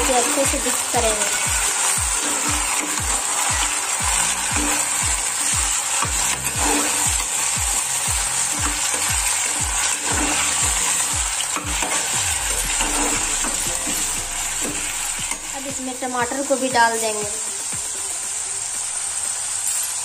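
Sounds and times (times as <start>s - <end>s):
background music: 0.0s - 20.0s
beans sizzling in hot oil: 0.0s - 20.0s
spatula scraping a pot: 1.2s - 7.6s.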